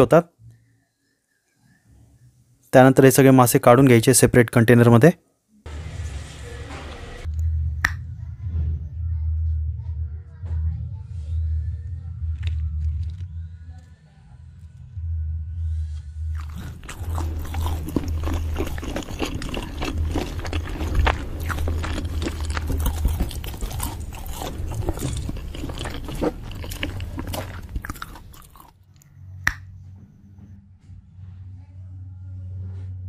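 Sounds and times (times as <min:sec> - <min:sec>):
low steady hum: 0:05.6 - 0:33.0
crunching and chewing: 0:16.4 - 0:29.6.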